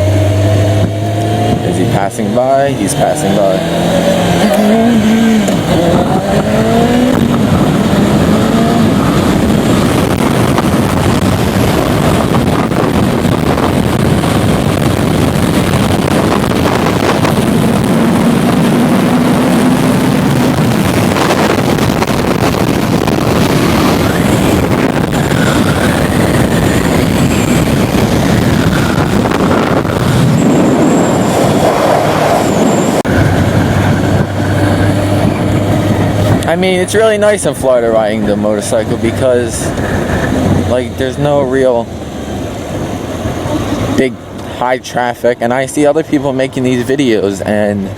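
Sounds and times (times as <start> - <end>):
wind noise: 0.0 - 47.9
motorcycle engine running: 3.6 - 40.8.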